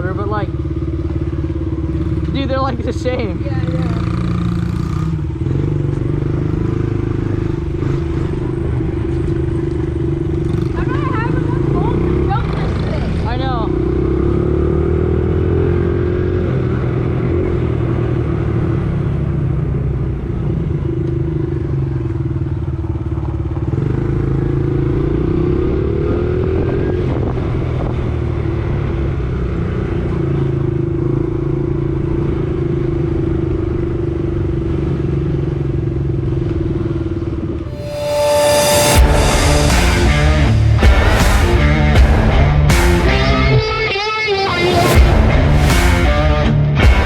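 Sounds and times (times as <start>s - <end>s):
motorbike engine running: 0.0s - 37.6s, 44.6s - 47.0s
loud music: 37.7s - 47.0s.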